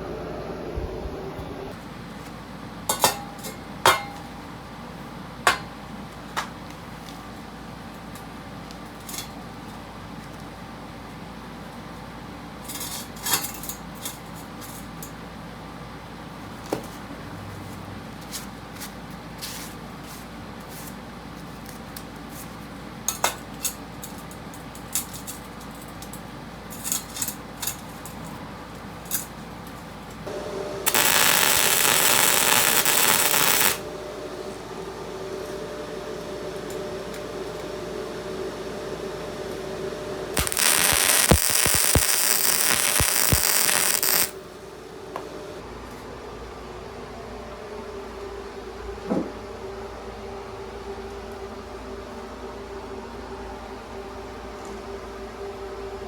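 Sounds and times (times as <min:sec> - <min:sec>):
low steady hum: 0:00.0 - 0:01.8
welder hissing crackle: 0:30.3 - 0:33.9, 0:40.4 - 0:44.4.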